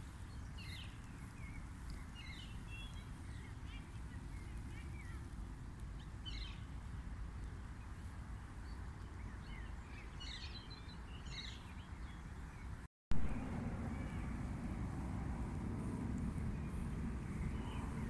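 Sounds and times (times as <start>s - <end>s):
birds chirping: 0.0s - 6.8s, 7.4s - 14.5s, 15.8s - 18.0s
low background rumble: 13.2s - 18.0s.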